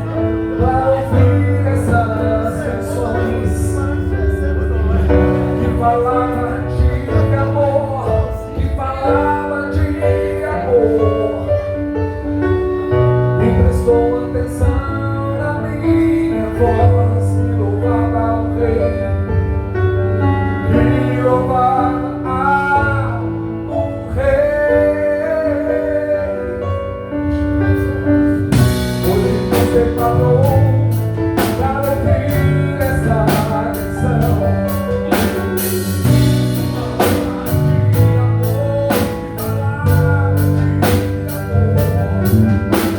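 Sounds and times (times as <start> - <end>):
live band playing with singing: 0.0 - 42.9
drum beat with cymbal hits: 28.6 - 32.0, 32.8 - 42.9.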